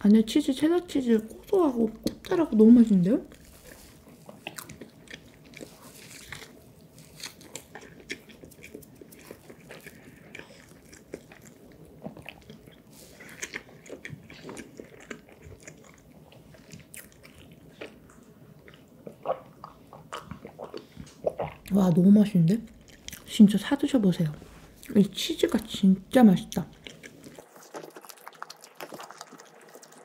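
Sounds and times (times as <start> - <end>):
chewing and mouth clicks: 3.3 - 21.8, 22.6 - 23.6, 26.5 - 30.0.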